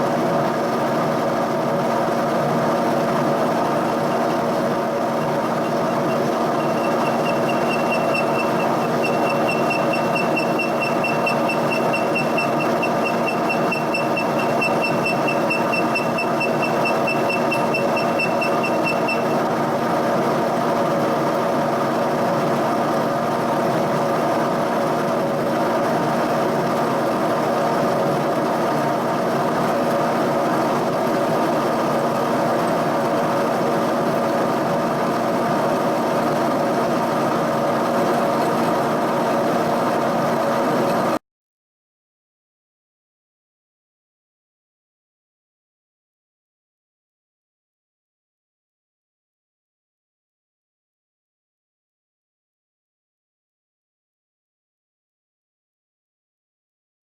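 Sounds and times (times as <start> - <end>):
boring mill machine hum: 0.1 - 20.4
high pulsing whine: 5.3 - 19.5.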